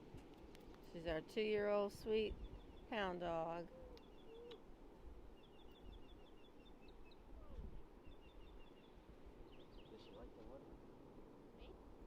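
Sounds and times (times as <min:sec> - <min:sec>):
faint bird chirping: 0:02.0 - 0:04.7, 0:05.3 - 0:10.6.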